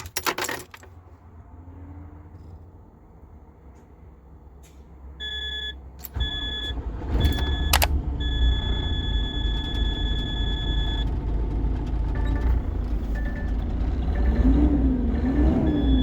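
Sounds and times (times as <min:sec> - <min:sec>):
diesel truck engine rumbling: 0:00.0 - 0:16.0
electronic warning beeps: 0:05.2 - 0:11.1, 0:15.4 - 0:16.0.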